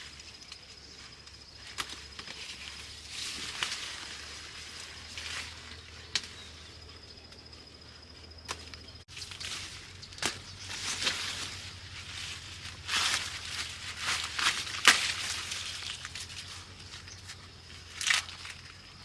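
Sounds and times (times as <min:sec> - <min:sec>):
plants rustling: 0:00.0 - 0:19.0
plant stems snapping: 0:01.6 - 0:04.0, 0:08.4 - 0:11.5, 0:12.9 - 0:16.5, 0:18.0 - 0:18.7.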